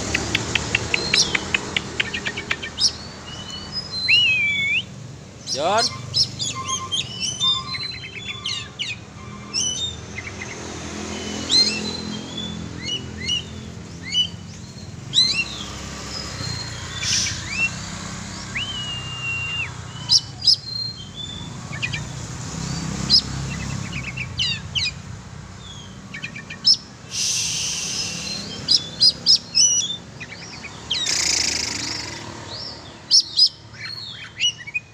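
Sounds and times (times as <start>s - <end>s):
bird singing chirps and whistles: 0.4s - 25.0s, 25.6s - 34.9s
short bursts of hiss: 27.1s - 28.4s.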